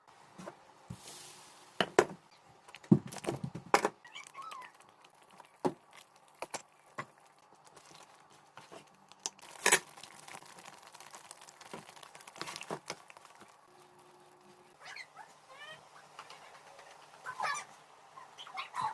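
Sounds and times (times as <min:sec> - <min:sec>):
crinkling: 0:02.6 - 0:14.8.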